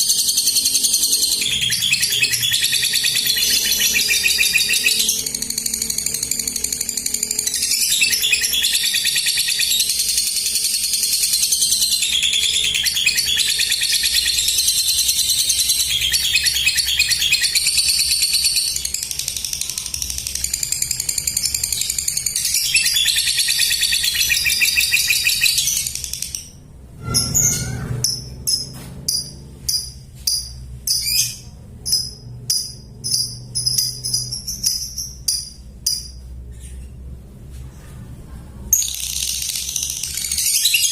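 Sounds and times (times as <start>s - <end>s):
lovebird chattering trill: 0.0s - 36.2s
bird chirps: 0.0s - 37.0s.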